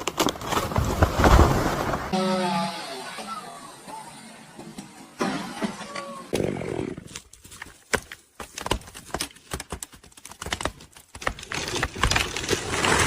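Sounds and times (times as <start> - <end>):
wood cracking and snapping: 0.0 - 2.1, 7.2 - 13.0.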